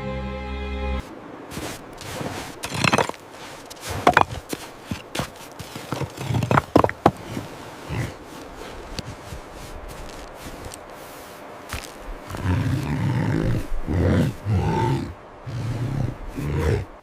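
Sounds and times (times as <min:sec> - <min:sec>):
footsteps crunching on snow: 0:01.0 - 0:13.0.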